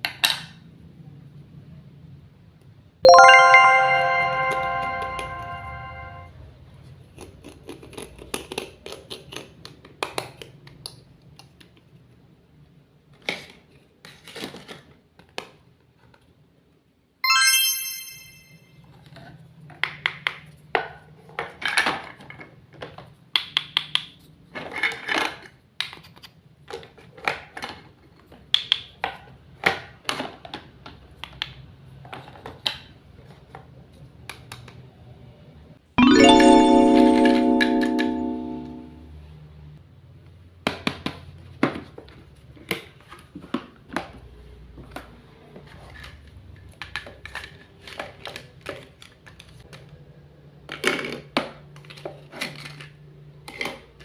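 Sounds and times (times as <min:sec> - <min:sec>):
bright chime ringing: 0:03.1 - 0:06.3, 0:17.2 - 0:18.6, 0:36.0 - 0:39.0.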